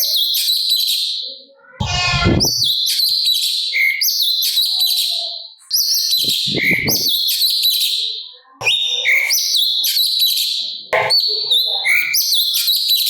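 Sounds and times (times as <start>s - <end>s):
bulbul singing: 5.8s - 13.0s.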